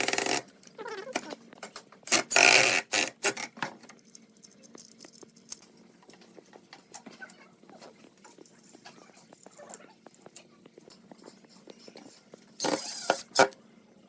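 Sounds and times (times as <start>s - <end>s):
faint taps and scratches: 4.6s - 13.3s.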